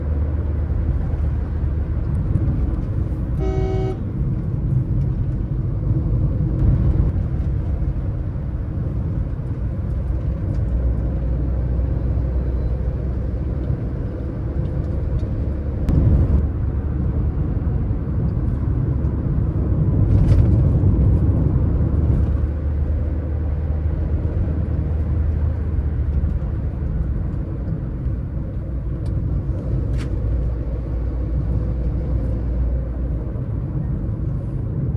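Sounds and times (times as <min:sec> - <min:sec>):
car engine rumble: 0:00.0 - 0:34.9
road noise: 0:00.0 - 0:34.9
short car horn toot: 0:03.4 - 0:04.0.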